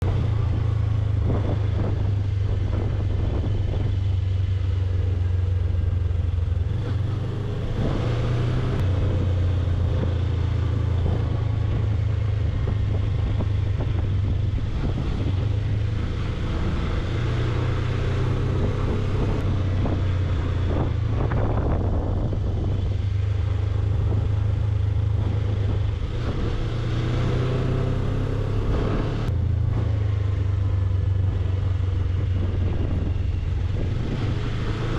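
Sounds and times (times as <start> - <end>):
motorcycle engine running: 0.0 - 34.9
wind rushing over microphone: 0.0 - 34.9.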